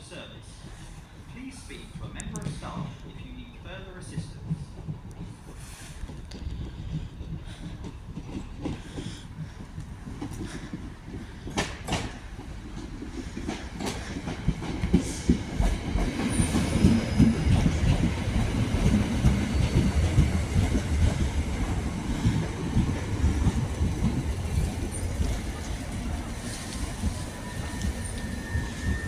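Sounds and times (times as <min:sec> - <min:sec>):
train rumble: 0:00.0 - 0:29.0
train wheels clicking over rail joints: 0:00.6 - 0:29.0.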